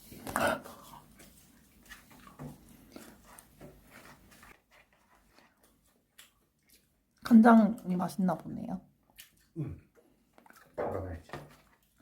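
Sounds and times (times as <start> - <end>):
chewing noises with soft clicks: 0.7 - 4.2, 5.0 - 7.9, 9.0 - 10.8.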